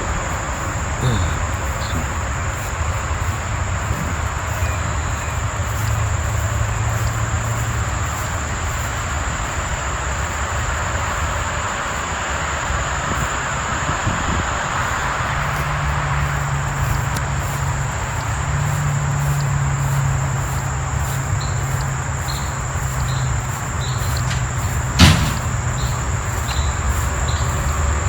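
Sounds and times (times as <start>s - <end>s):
faint chirps: 0.0s - 7.2s
high insect drone: 0.0s - 28.0s
outdoor rumble: 0.0s - 28.0s
sharp knock: 24.3s - 25.6s.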